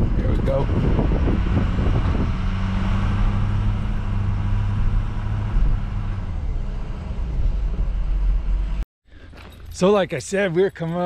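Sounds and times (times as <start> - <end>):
truck engine drone: 0.0 - 8.8
road noise: 0.0 - 11.0.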